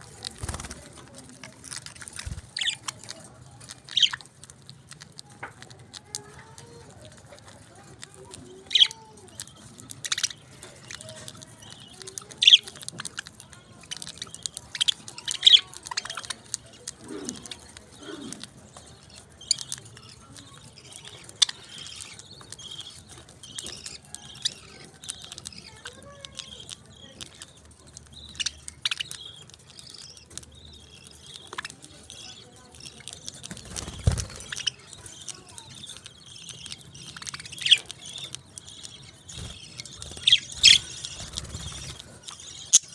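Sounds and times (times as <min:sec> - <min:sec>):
parakeets chirping and chattering: 0:00.0 - 0:42.9.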